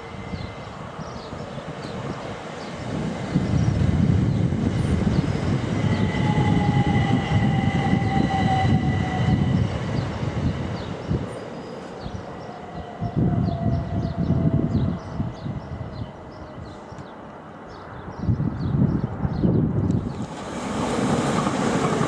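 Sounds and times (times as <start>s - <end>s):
train wheels rumbling on rails: 0.0s - 17.2s, 19.1s - 22.0s
train whine falling in pitch: 5.4s - 10.1s.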